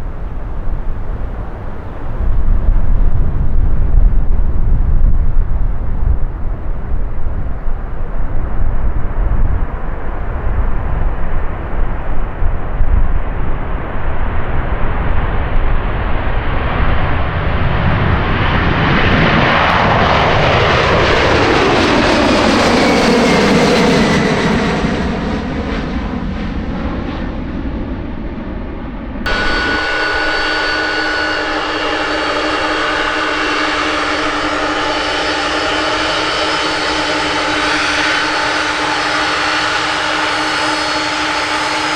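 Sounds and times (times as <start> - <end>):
aircraft engines high whine: 0.0 - 41.9
aircraft engines passing: 0.0 - 41.9.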